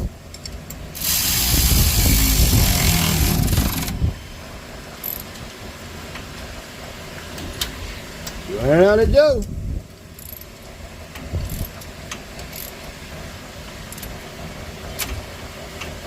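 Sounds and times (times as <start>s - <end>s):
cordless power tool running: 1.0s - 4.2s.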